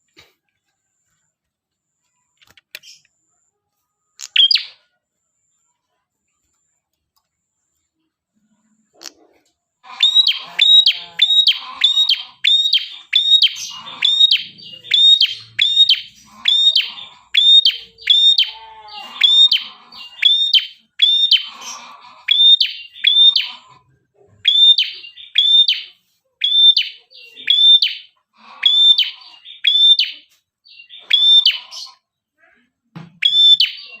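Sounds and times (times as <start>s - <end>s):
tailorbird calling sharp notes: 9.8s - 23.7s.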